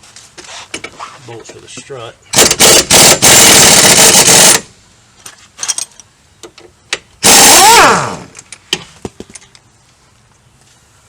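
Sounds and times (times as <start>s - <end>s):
pneumatic impact wrench hammering: 2.3s - 4.7s, 7.2s - 8.9s.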